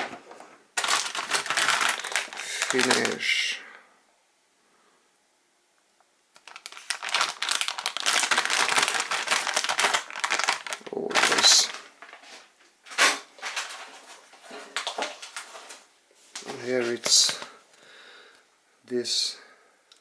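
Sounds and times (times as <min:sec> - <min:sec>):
packaging crinkling and rustling: 0:00.0 - 0:03.3, 0:06.4 - 0:17.6.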